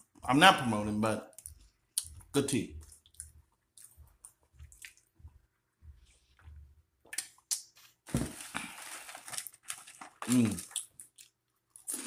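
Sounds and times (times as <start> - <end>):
mouth clicks and chewing: 1.3 - 5.1.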